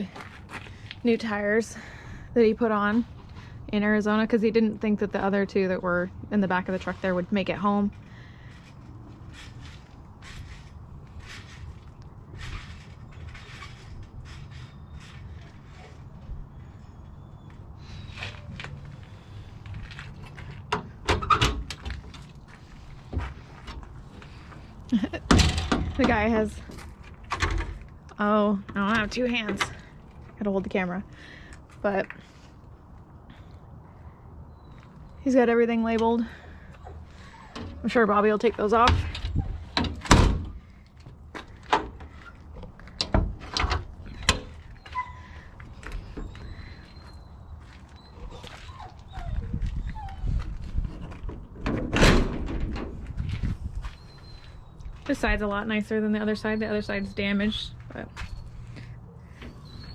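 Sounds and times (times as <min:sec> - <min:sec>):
metal door latch clacking: 0:25.2 - 0:26.2.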